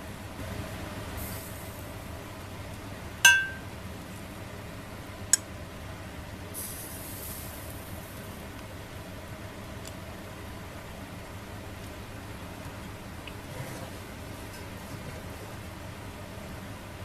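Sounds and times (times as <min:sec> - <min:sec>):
tableware clinking: 0:03.3 - 0:03.6.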